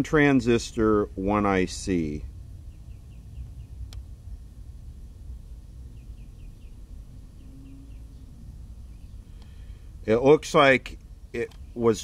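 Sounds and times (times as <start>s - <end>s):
low background rumble: 0.0s - 12.0s
faint bird chirps: 2.6s - 3.9s, 5.7s - 9.9s
sharp click: 11.0s - 11.7s.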